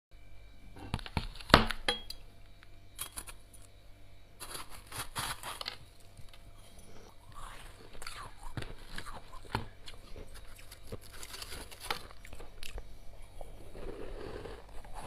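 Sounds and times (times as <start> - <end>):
scraping through freezer frost: 4.4 - 5.8, 7.3 - 12.5.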